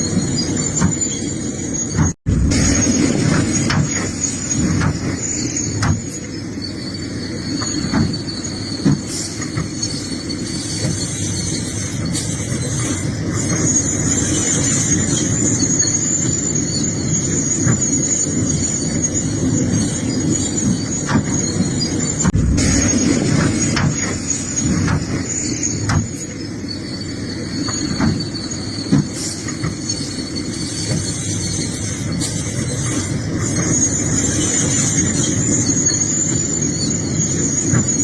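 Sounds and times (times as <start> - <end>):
excavator engine running: 0.0 - 38.0
high-pitched squeal: 0.0 - 38.0.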